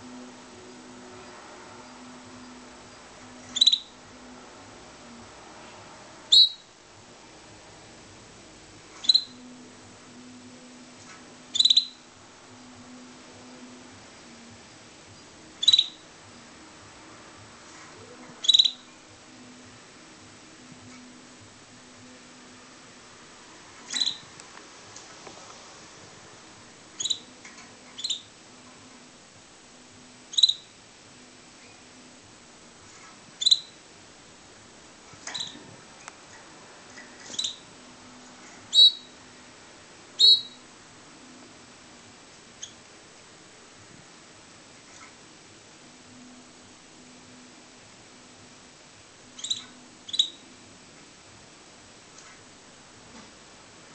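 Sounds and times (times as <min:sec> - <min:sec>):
canary chirping: 0:00.0 - 0:05.2, 0:06.2 - 0:06.8, 0:08.8 - 0:19.6, 0:23.7 - 0:24.4, 0:26.9 - 0:29.1, 0:30.0 - 0:30.8, 0:32.8 - 0:33.9, 0:35.1 - 0:39.4, 0:40.1 - 0:40.7, 0:42.4 - 0:42.9, 0:49.3 - 0:50.6.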